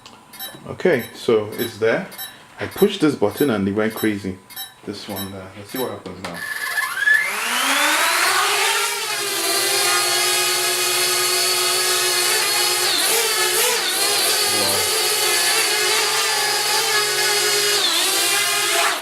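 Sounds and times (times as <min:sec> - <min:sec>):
drone propellers whining: 0:06.4 - 0:09.8, 0:12.3 - 0:16.8.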